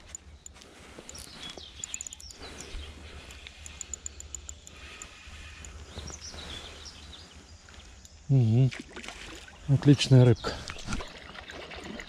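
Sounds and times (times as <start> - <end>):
high-pitched ticks: 0.0 - 5.9, 7.8 - 8.2
birds chirping and calling: 0.0 - 8.3.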